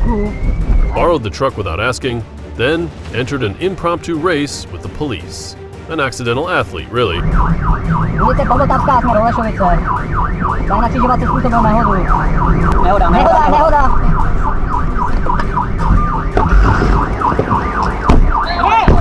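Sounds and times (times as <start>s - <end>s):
police sirens yelping: 6.8s - 19.0s
low rumble of vehicles: 7.0s - 19.0s.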